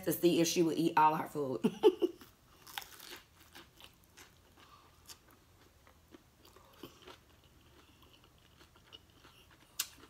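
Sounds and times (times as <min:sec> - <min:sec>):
faint chewing: 0:02.2 - 0:10.0.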